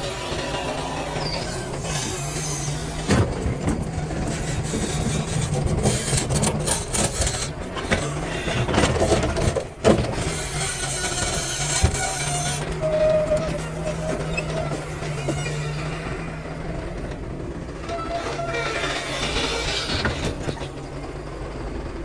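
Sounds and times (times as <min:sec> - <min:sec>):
excavator diesel engine: 0:00.0 - 0:22.0
bucket scraping rock: 0:08.2 - 0:16.0.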